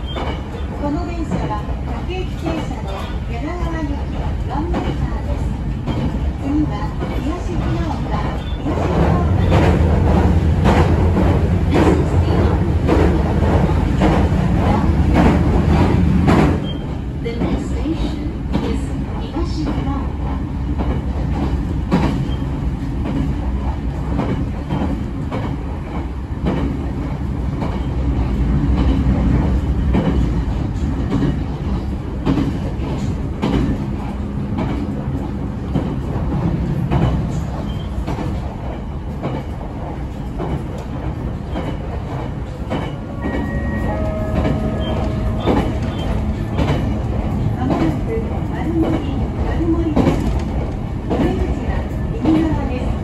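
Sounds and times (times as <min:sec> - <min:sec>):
rail joint clicks: 0:00.0 - 0:53.0
train wheels rumbling on rails: 0:00.0 - 0:53.0
steady tones: 0:42.4 - 0:52.8.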